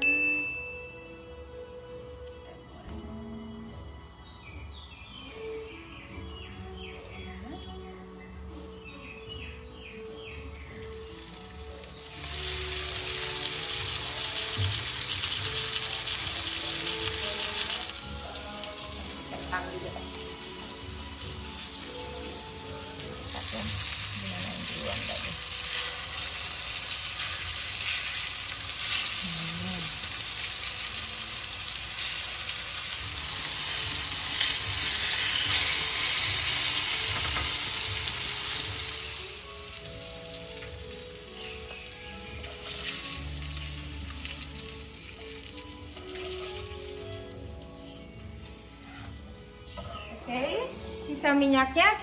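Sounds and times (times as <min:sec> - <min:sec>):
fish sizzling in oil: 0:10.4 - 0:49.6.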